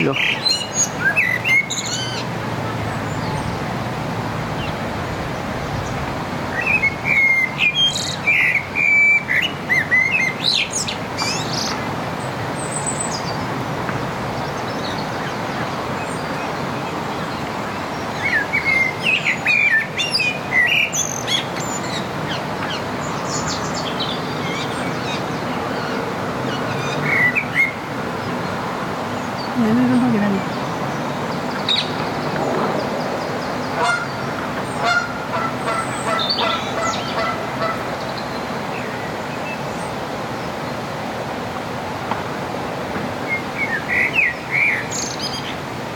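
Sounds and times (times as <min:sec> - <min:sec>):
blackbird singing: 0:00.0 - 0:02.3, 0:06.5 - 0:11.8
steady background noise: 0:00.0 - 0:45.9.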